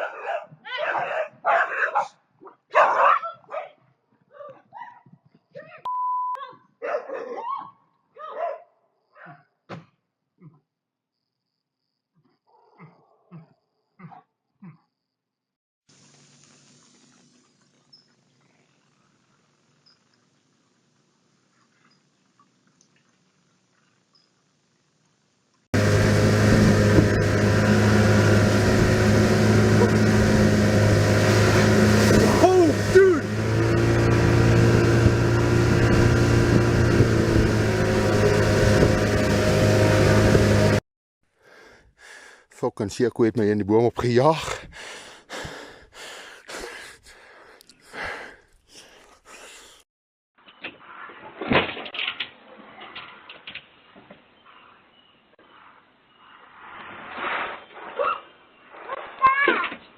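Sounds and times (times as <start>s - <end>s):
dog barking and yelping: 0.0s - 5.1s, 6.8s - 9.4s, 57.9s - 58.3s
short steady beep: 5.9s - 6.4s
noisy rush: 25.8s - 40.8s
vehicle engine humming: 25.8s - 40.8s.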